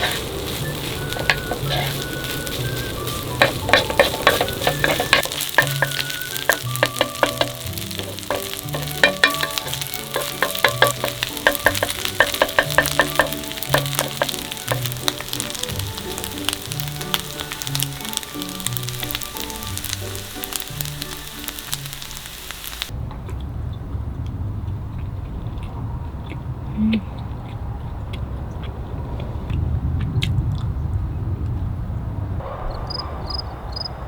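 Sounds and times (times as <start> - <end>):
spatula scraping a pan: 0.0 - 22.1
fried rice sizzling in a pan: 0.0 - 22.9.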